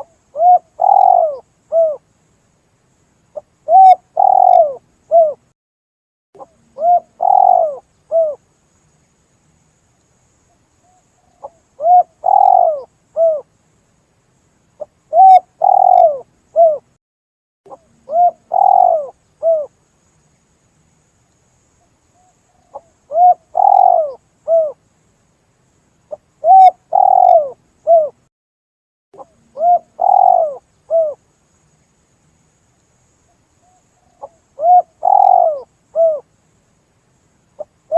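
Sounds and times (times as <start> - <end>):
dove cooing: 0.0 - 2.0, 3.6 - 5.4, 6.4 - 8.4, 11.3 - 13.5, 14.8 - 16.9, 17.7 - 19.7, 22.6 - 24.8, 26.1 - 28.2, 29.2 - 31.2, 34.0 - 36.3.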